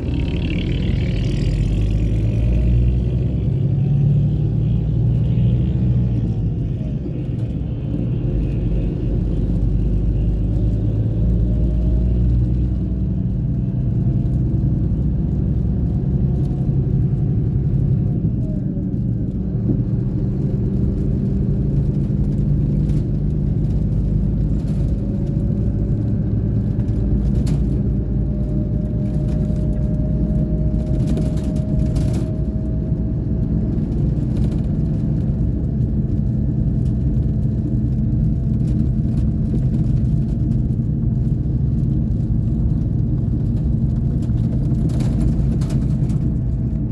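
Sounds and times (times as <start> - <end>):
bus engine droning: 0.0 - 46.9.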